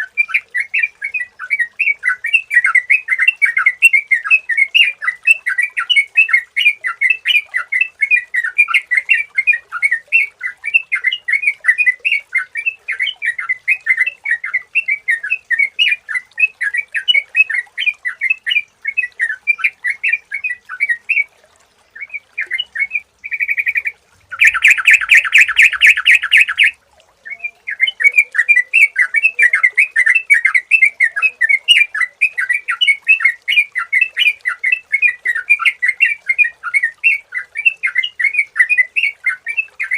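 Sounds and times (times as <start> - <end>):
bulbul chirping: 23.3 - 26.8.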